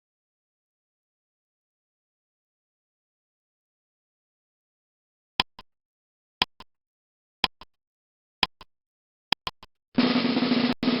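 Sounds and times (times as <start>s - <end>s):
sharp ticks: 5.4s - 5.7s, 6.4s - 6.7s, 7.4s - 7.8s, 8.4s - 8.7s, 9.3s - 9.8s
snare drum roll: 10.0s - 11.0s.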